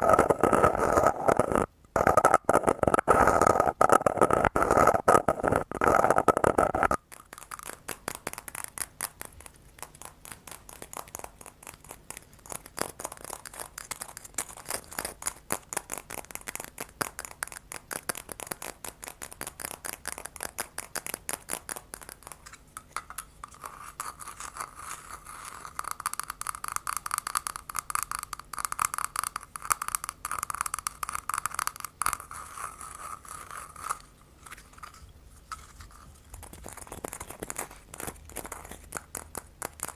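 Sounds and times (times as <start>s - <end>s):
tapping and scratching on hard object: 0.0s - 39.9s.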